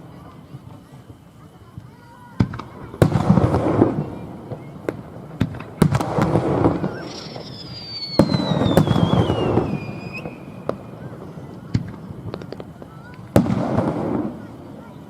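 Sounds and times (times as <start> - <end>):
fireworks bangs with crackle: 0.0 - 15.0
small firework pops: 0.0 - 15.0
high descending whistle: 6.8 - 10.7.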